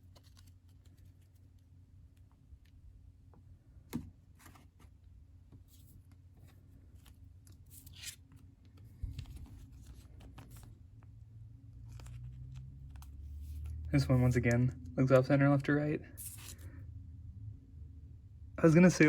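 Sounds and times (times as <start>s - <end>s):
card sleeves rustling: 0.0s - 1.6s, 4.3s - 14.5s, 16.1s - 16.8s.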